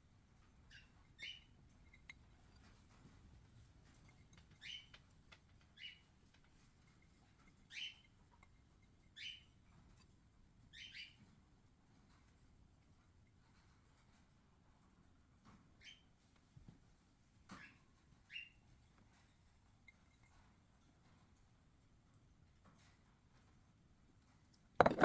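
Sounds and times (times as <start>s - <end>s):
faint bird chirps: 0.6s - 2.1s, 4.2s - 5.0s, 7.6s - 8.4s, 9.0s - 9.6s, 10.7s - 11.2s, 15.8s - 16.1s, 17.6s - 18.6s.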